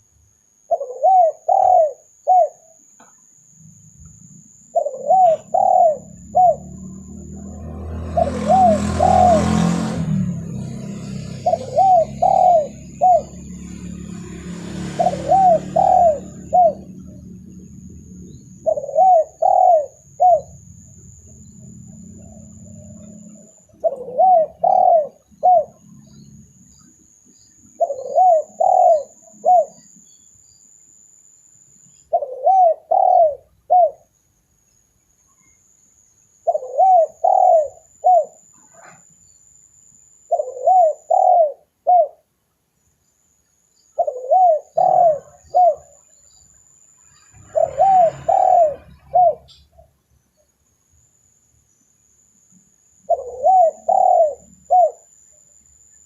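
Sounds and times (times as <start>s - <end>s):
dove cooing: 0.7s - 2.8s, 4.5s - 10.1s, 10.8s - 26.3s, 27.7s - 30.0s, 32.1s - 34.1s, 36.4s - 39.0s, 40.3s - 42.2s, 44.0s - 46.0s, 47.3s - 49.8s, 53.1s - 55.1s.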